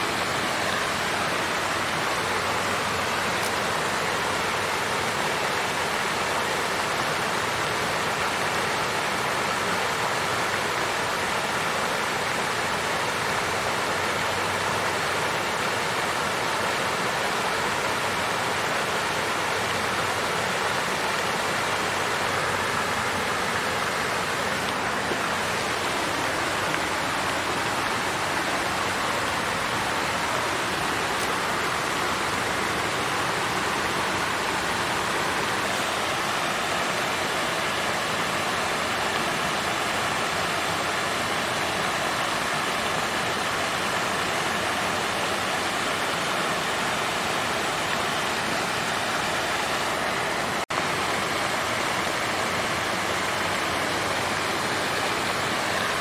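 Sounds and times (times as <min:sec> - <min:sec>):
water fountain splashing: 0:00.0 - 0:56.0.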